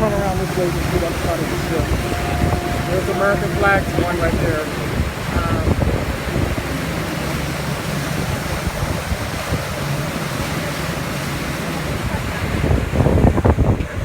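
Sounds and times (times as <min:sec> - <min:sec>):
wind rushing: 0:00.0 - 0:09.8
low steady hum: 0:00.0 - 0:10.1
water rushing around boat: 0:00.0 - 0:14.0.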